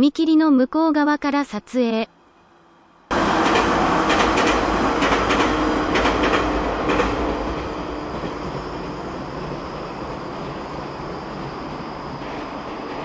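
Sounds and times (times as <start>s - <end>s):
train rumble: 2.4s - 13.0s
train wheels clacking over joints: 3.1s - 9.6s.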